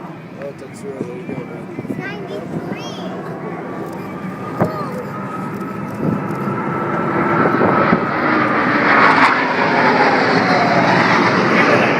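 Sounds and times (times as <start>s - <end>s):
airplane flying past: 0.0s - 11.9s
engine whine falling in pitch: 3.2s - 11.9s.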